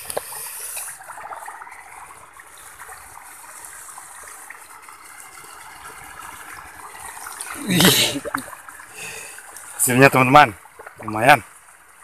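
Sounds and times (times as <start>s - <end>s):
small faint ticks: 0.0s - 0.9s
trickle of running water: 0.0s - 12.0s.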